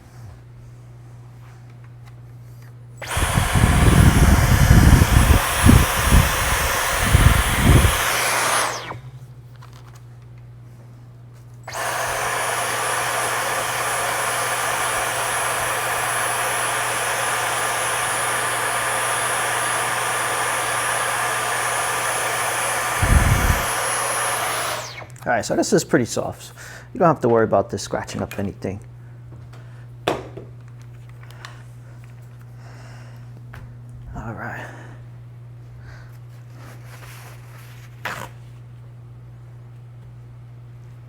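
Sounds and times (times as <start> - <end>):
small electric motor tool whining: 3.0 - 9.2, 11.6 - 25.2.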